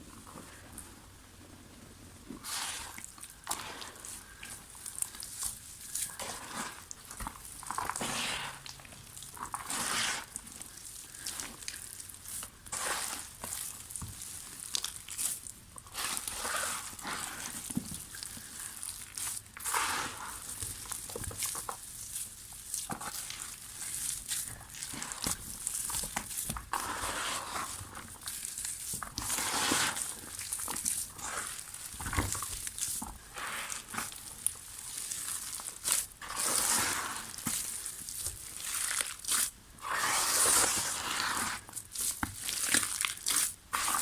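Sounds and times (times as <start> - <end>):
dry mud crumbling: 20.6 - 39.6.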